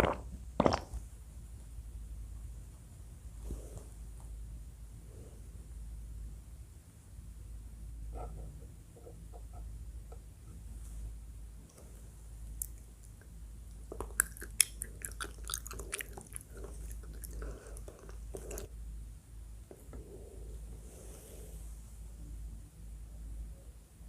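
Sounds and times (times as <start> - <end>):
chewing soft food: 12.5 - 18.7.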